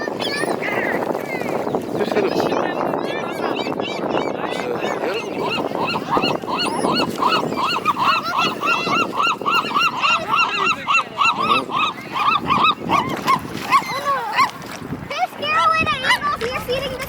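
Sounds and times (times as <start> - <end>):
flock of birds honking: 4.7 - 14.5.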